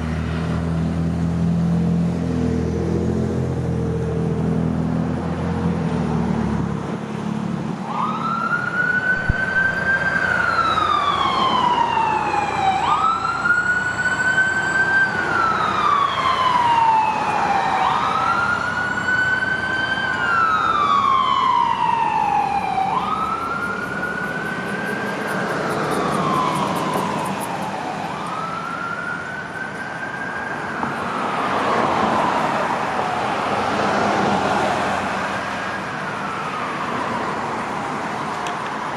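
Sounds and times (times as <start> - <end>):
traffic noise: 0.0 - 38.9
emergency siren wailing: 7.7 - 38.9
low vehicle rumble: 20.4 - 31.4.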